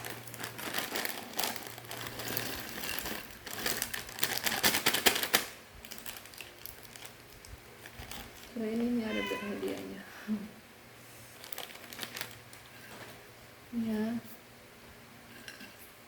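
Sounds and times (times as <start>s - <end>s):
plastic snack packet crinkling: 0.0s - 10.0s, 11.4s - 12.7s.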